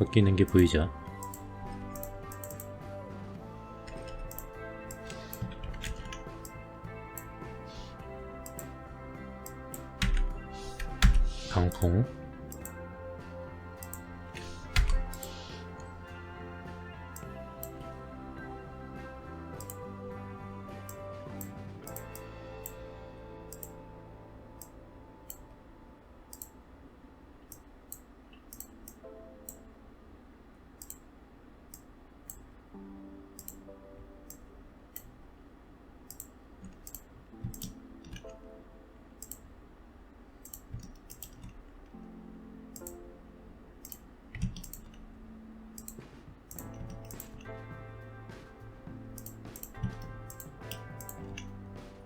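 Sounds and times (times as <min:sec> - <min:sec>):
soft background music: 0:00.0 - 0:31.1, 0:31.7 - 0:52.0
computer mouse clicking: 0:00.4 - 0:02.8, 0:03.9 - 0:08.8, 0:09.4 - 0:12.8, 0:13.8 - 0:16.0, 0:19.6 - 0:19.8, 0:20.8 - 0:22.8, 0:23.5 - 0:23.8, 0:26.3 - 0:26.6, 0:27.4 - 0:29.6, 0:30.8 - 0:31.1, 0:31.7 - 0:32.5, 0:33.4 - 0:33.7, 0:36.0 - 0:38.4, 0:39.2 - 0:39.5, 0:40.4 - 0:42.0, 0:42.7 - 0:43.0, 0:43.8 - 0:45.1, 0:45.8 - 0:47.6, 0:49.2 - 0:51.5.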